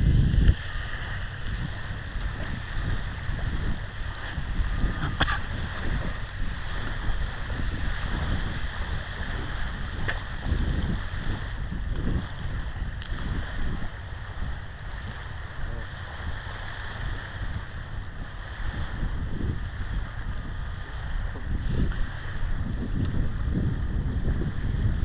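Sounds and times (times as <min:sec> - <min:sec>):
steady outdoor hiss: 0:00.0 - 0:24.9
wind buffeting microphone: 0:00.0 - 0:25.0.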